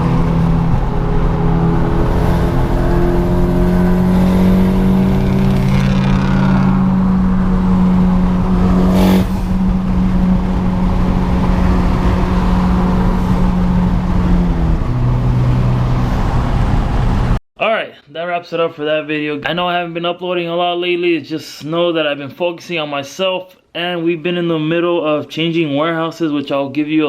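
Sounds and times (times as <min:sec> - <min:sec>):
car engine running: 0:00.0 - 0:17.4.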